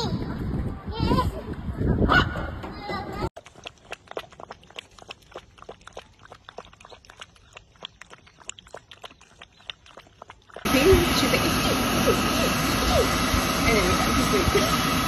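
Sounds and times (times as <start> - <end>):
puppy lapping water: 3.4 - 13.0
hair dryer rushing: 10.7 - 15.0.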